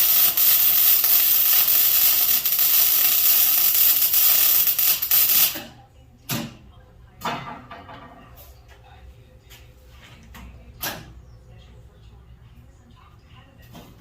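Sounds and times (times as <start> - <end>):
arc welder crackling and hissing: 0.0 - 5.8.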